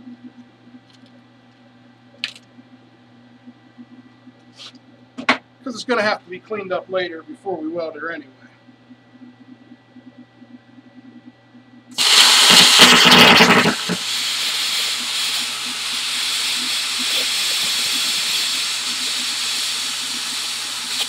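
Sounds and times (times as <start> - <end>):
plasma cutter hissing: 12.0 - 21.0.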